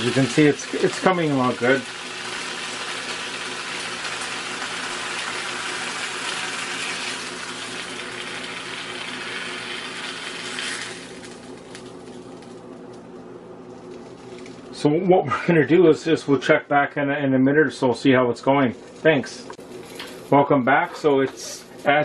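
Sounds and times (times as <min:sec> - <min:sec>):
ham sizzling in a frying pan: 0:00.0 - 0:11.8.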